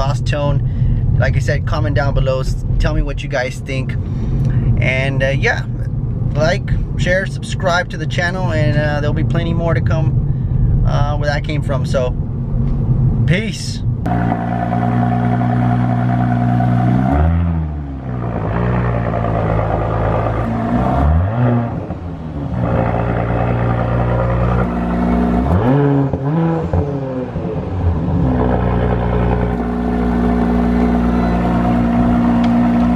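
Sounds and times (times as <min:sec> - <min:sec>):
car engine idling: 0:14.0 - 0:17.0, 0:18.0 - 0:32.9
engine throttle blips: 0:14.0 - 0:32.9.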